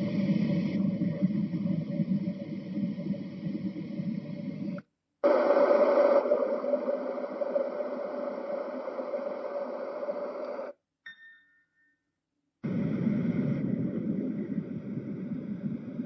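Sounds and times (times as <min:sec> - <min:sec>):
deep rumbling noise: 0:12.6 - 0:16.0.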